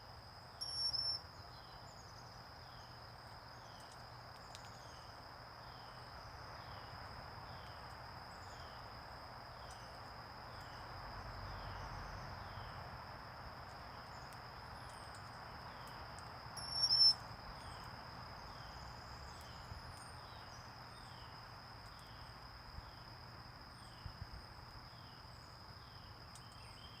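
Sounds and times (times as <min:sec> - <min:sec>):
background hiss: 0:00.0 - 0:27.0
insect chorus drone: 0:00.0 - 0:27.0
bird call: 0:00.6 - 0:01.2, 0:16.6 - 0:17.2.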